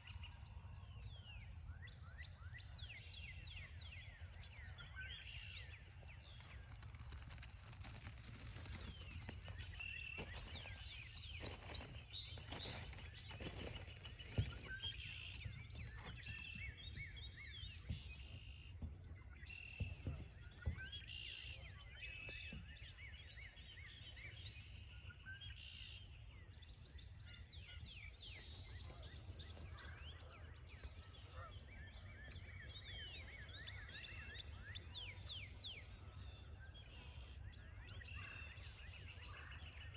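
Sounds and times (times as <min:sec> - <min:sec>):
songbirds calling and singing: 0:00.0 - 0:39.9
crunching footsteps: 0:03.7 - 0:15.0.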